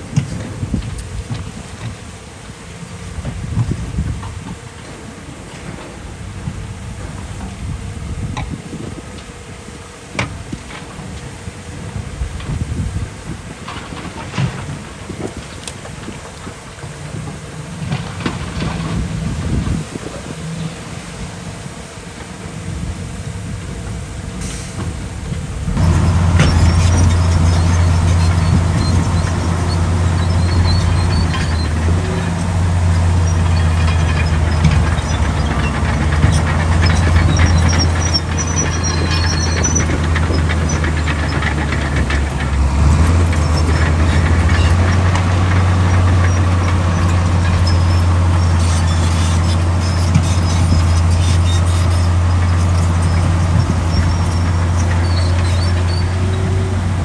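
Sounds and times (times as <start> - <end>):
heavy diesel machinery running: 10.7 - 21.2, 22.4 - 57.0
high squeaks: 25.8 - 57.0.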